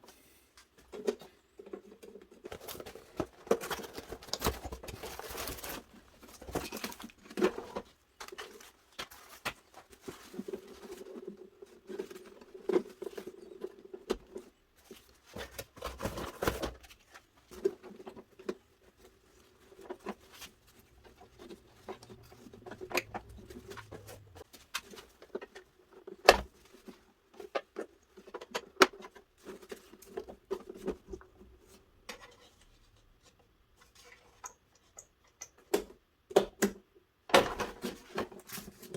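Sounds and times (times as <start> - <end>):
plastic parts clicking and scratching: 0.8 - 36.0.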